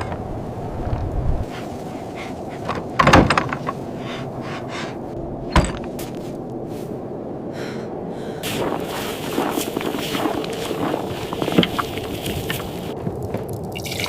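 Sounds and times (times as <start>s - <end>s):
storm wind rushing: 0.0s - 13.8s
knocking and rattling: 2.6s - 3.9s.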